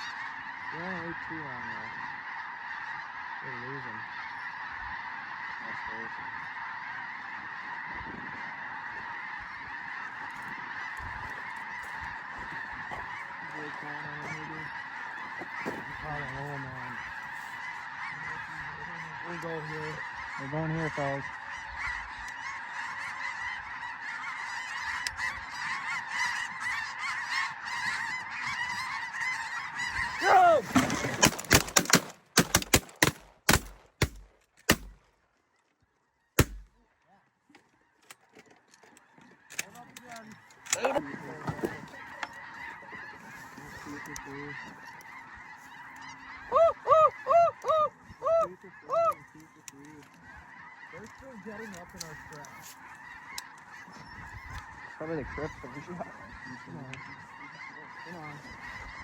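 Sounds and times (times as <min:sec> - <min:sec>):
flock of geese honking: 0:00.0 - 0:59.0
shotguns firing: 0:30.8 - 0:35.1, 0:36.4 - 0:36.8.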